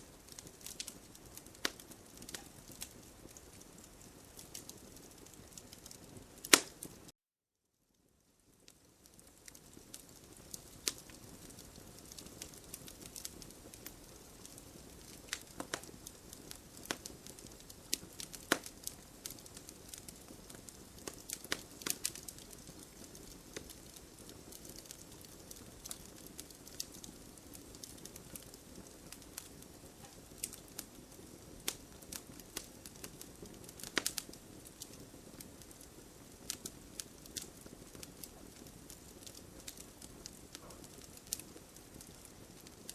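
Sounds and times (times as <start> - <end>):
wood crackling in campfire: 0.0 - 7.1, 8.0 - 42.9
sharp pops and snaps: 0.3 - 4.8, 5.6 - 7.0, 9.4 - 27.1, 31.6 - 35.0.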